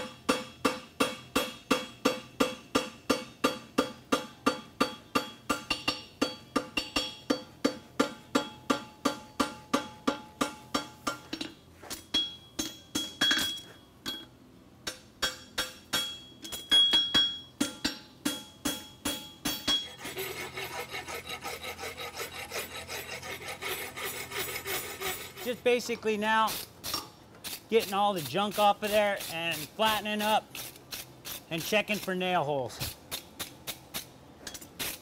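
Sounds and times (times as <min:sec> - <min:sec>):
hammer ringing on horseshoe: 0:00.0 - 0:14.3, 0:14.9 - 0:23.2
rasp filing horseshoe: 0:19.1 - 0:32.2.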